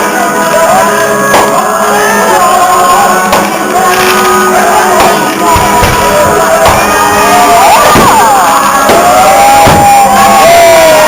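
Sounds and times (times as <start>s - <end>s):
rock music with singing: 0.0s - 11.0s
low thumps: 5.0s - 10.1s.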